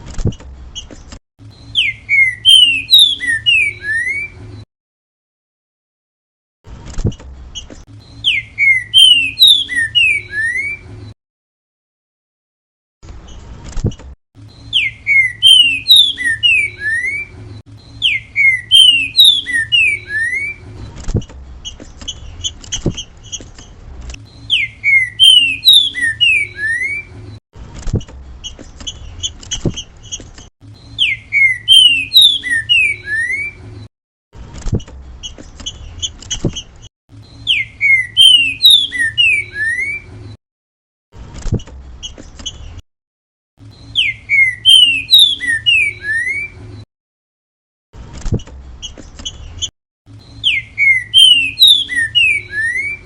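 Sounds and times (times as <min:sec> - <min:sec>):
bird whistled song: 0:01.5 - 0:04.6, 0:07.6 - 0:10.9, 0:14.5 - 0:20.7, 0:24.2 - 0:27.2, 0:28.4 - 0:33.7, 0:37.2 - 0:40.2, 0:43.6 - 0:46.6, 0:48.8 - 0:53.0.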